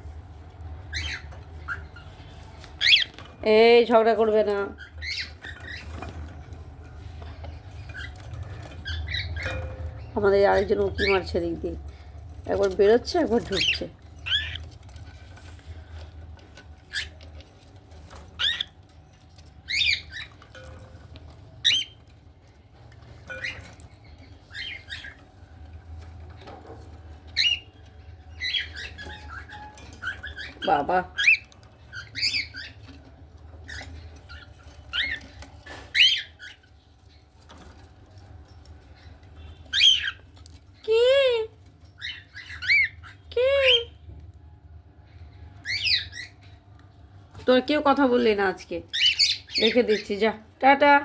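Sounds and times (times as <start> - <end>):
low steady hum: 0.0 - 51.0
cockatiels squawking: 0.8 - 3.4, 4.6 - 6.4, 7.2 - 11.4, 12.5 - 15.4, 16.1 - 20.6, 21.5 - 22.2, 23.3 - 25.6, 27.0 - 40.4, 41.8 - 43.9, 45.6 - 46.6, 48.9 - 50.3.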